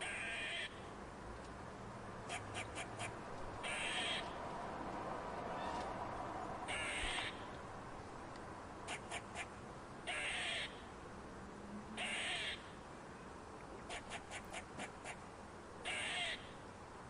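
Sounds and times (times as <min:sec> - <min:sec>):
crow cawing: 0:00.0 - 0:00.8, 0:02.3 - 0:04.4, 0:06.7 - 0:07.5, 0:10.1 - 0:10.8, 0:12.0 - 0:12.7, 0:15.8 - 0:16.6.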